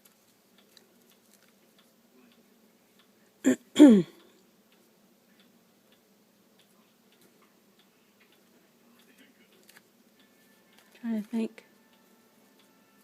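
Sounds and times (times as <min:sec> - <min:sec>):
woman clearing her throat: 0:03.5 - 0:04.2.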